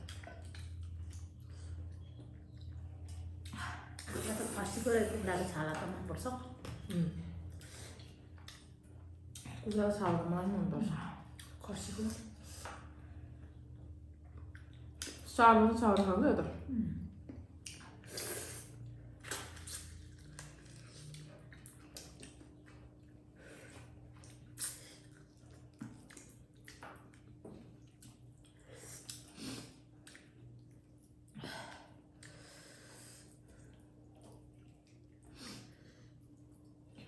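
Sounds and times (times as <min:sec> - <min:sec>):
chewing and wet mouth noises: 0:00.0 - 0:10.2, 0:11.0 - 0:16.2, 0:17.1 - 0:37.0
faint steady hum: 0:00.0 - 0:37.0.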